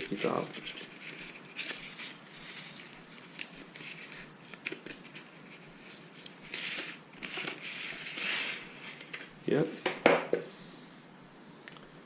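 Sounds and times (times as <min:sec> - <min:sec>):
packaging rustling: 0:00.0 - 0:09.3.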